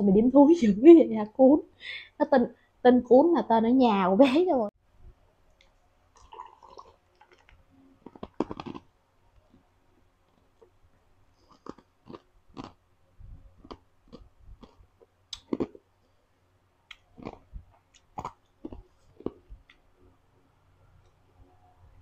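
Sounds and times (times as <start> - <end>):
person chewing crisp fruit: 5.6 - 9.7, 10.3 - 12.9, 13.5 - 20.2.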